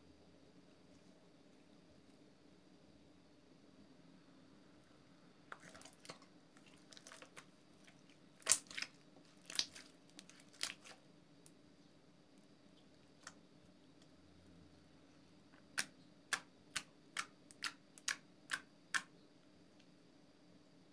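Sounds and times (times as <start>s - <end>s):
slime crackling and popping: 5.5s - 11.6s, 15.6s - 19.1s.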